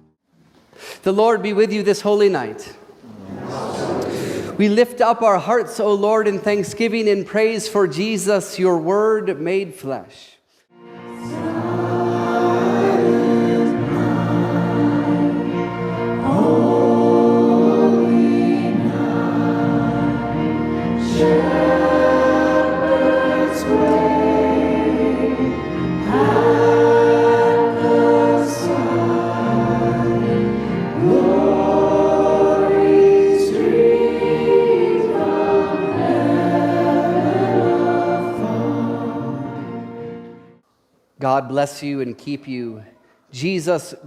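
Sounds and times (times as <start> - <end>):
choir singing a hymn: 3.0 - 4.8, 11.0 - 40.6.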